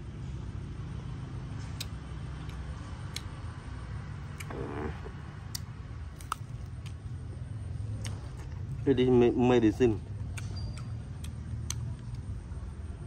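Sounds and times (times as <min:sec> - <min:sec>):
distant traffic rumble: 0:00.0 - 0:13.0
crunchy food being chewed: 0:04.2 - 0:08.9, 0:09.8 - 0:12.6.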